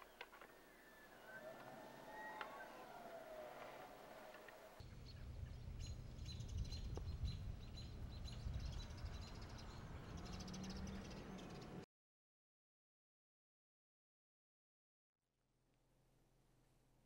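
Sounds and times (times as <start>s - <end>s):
small birds chirping: 0.0s - 11.8s
low rumble of wind: 0.5s - 11.8s.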